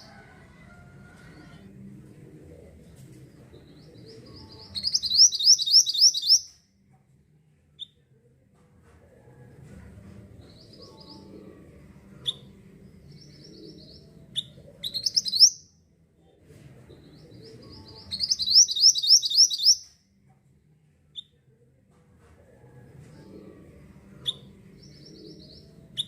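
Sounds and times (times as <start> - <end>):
songbird singing high chirps: 4.4 - 6.5, 13.2 - 15.7, 17.8 - 19.9.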